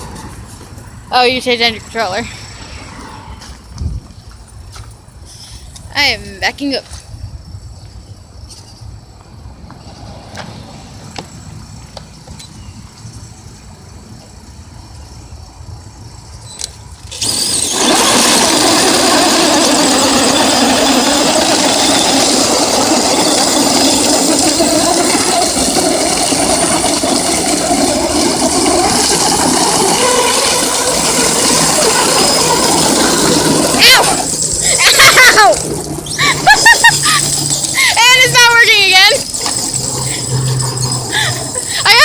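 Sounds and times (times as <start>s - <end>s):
toy truck electric motors: 16.2s - 42.0s.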